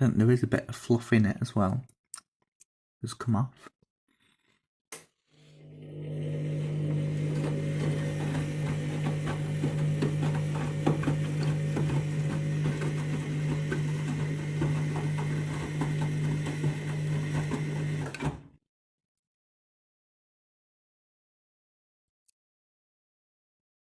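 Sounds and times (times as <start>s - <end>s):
washing machine motor hum: 5.5s - 18.5s
drum clicking and knocking: 7.4s - 17.7s.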